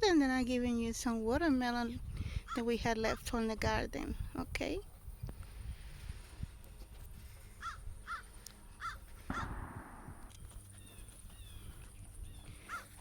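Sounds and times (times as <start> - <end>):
bird calling: 7.6 - 13.0.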